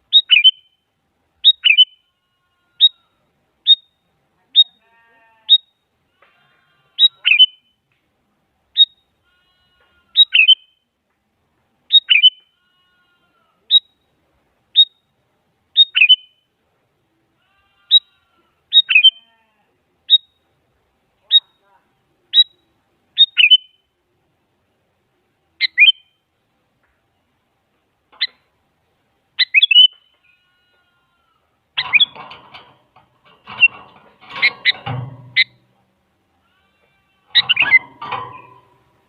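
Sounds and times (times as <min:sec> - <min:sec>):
bulbul calling: 0:00.0 - 0:00.8, 0:01.4 - 0:02.0, 0:07.0 - 0:07.7, 0:10.2 - 0:10.7, 0:11.9 - 0:12.5, 0:15.8 - 0:16.4, 0:18.7 - 0:19.2, 0:23.2 - 0:23.8, 0:25.6 - 0:26.1, 0:28.2 - 0:28.4, 0:29.4 - 0:30.2, 0:31.8 - 0:32.5, 0:33.4 - 0:35.6, 0:37.4 - 0:38.8.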